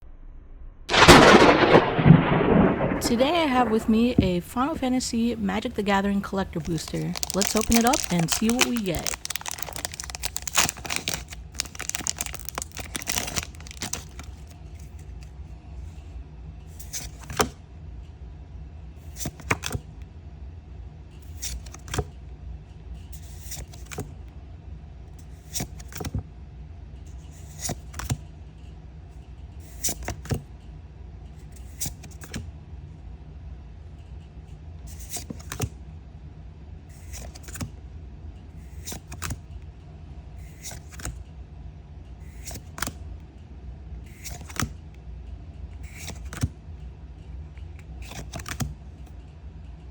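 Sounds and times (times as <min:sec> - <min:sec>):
low steady hum: 0:00.0 - 0:14.6
foil wrapper crinkling: 0:06.4 - 0:14.5
trading cards snapping: 0:06.6 - 0:14.4.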